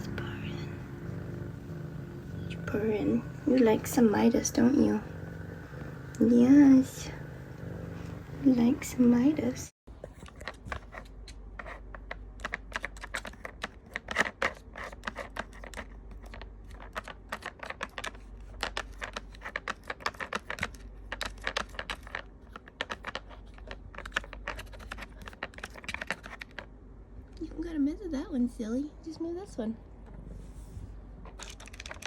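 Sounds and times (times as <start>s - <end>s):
plastic toy pieces clicking: 12.0s - 26.6s, 31.3s - 32.0s.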